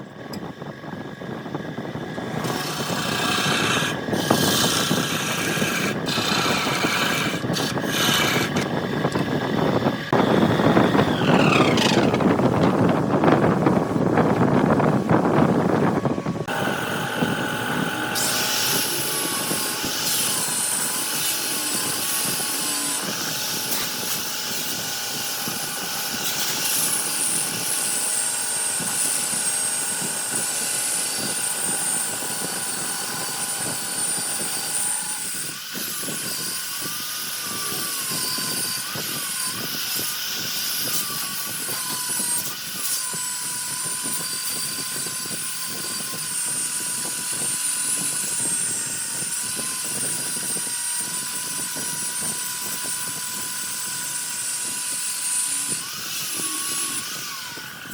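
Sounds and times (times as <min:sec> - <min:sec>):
lathe motor whine: 0:00.0 - 0:57.9
turning tool scraping wood: 0:02.4 - 0:09.4, 0:10.6 - 0:13.0.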